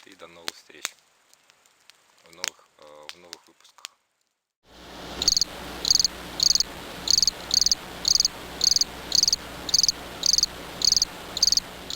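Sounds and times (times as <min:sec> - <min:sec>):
cricket chirping: 0:05.2 - 0:11.9.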